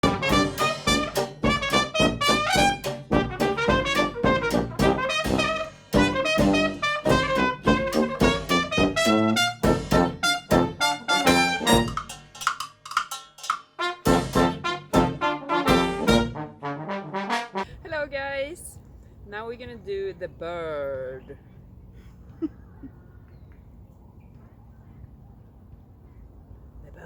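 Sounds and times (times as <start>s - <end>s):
trumpet: 0.0s - 12.3s, 13.7s - 17.7s
trombone: 0.0s - 12.4s, 13.7s - 17.8s
steady drum beat: 0.0s - 16.3s.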